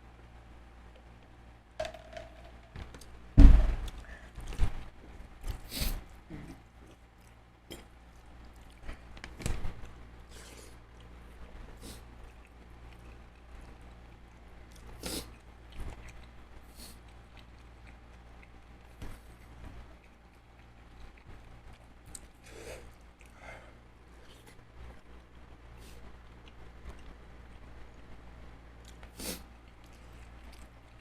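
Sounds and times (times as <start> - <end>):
clicks and crackles of food: 0.9 - 23.5, 24.2 - 31.0
loud thud: 3.4 - 3.9
chewing: 5.5 - 23.5, 28.8 - 31.0.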